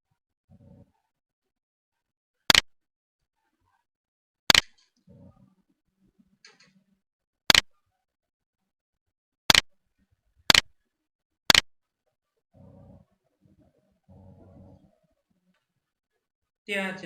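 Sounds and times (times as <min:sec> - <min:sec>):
computer mouse clicking: 0:02.5 - 0:02.7, 0:04.5 - 0:05.0, 0:07.5 - 0:07.7, 0:09.5 - 0:09.7, 0:10.5 - 0:10.7, 0:11.5 - 0:11.7.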